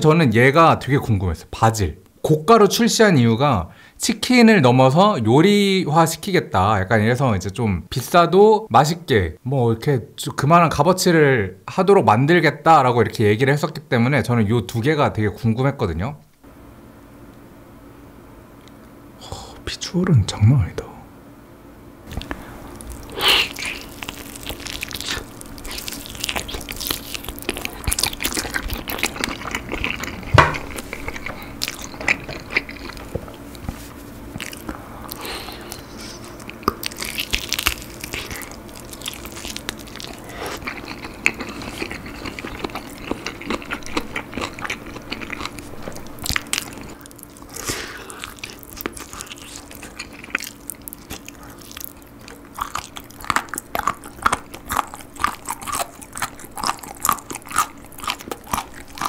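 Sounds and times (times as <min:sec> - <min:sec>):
wet mouth sounds: 0:22.1 - 0:33.7, 0:34.3 - 0:59.0
chewing and biting chicken: 0:22.1 - 0:59.0.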